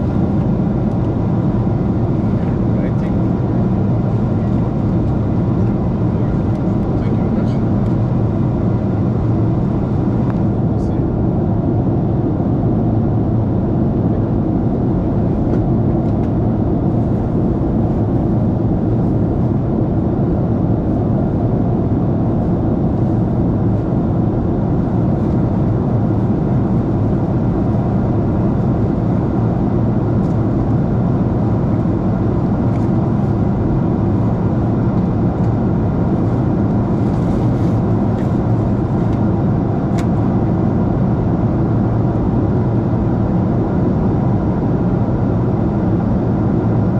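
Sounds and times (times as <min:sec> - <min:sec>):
airliner cabin rumble: 0:00.0 - 0:46.9.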